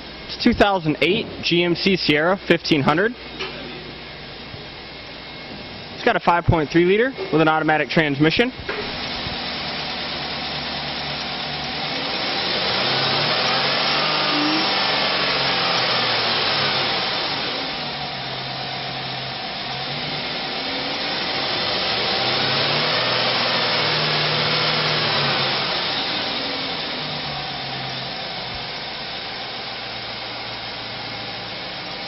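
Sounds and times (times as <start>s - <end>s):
fan and intake hiss: 0.0s - 32.0s
truck engine revving: 8.8s - 32.0s.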